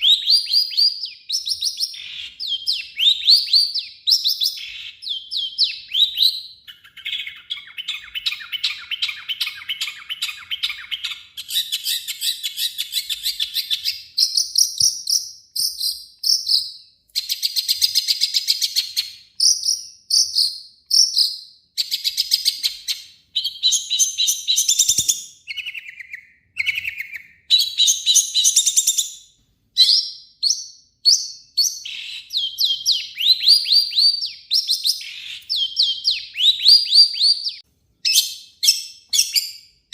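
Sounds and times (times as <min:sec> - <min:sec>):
bird singing harsh chattering song: 0:00.0 - 0:39.9.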